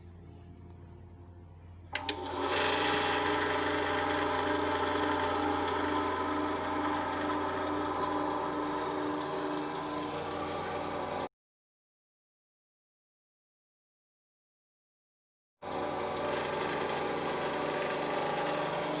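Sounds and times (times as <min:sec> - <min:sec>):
bandsaw motor whining: 0:01.9 - 0:11.3, 0:15.6 - 0:19.0.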